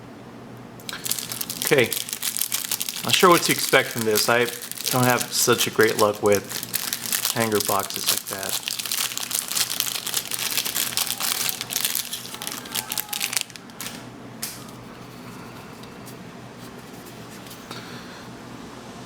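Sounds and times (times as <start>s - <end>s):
plastic wrapping crinkling: 0.8s - 14.1s.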